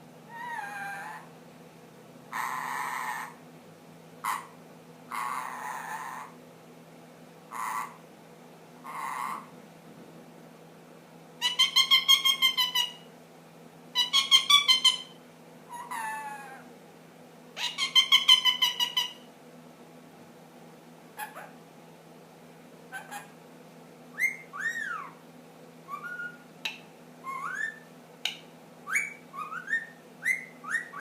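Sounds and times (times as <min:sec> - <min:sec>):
parakeet chattering calls: 0:00.3 - 0:01.3, 0:02.3 - 0:03.4, 0:04.2 - 0:06.4, 0:07.5 - 0:08.0, 0:08.8 - 0:09.5, 0:11.4 - 0:13.1, 0:14.0 - 0:16.6, 0:17.6 - 0:19.3, 0:21.2 - 0:21.6, 0:22.9 - 0:23.4, 0:24.2 - 0:25.2, 0:25.9 - 0:31.0.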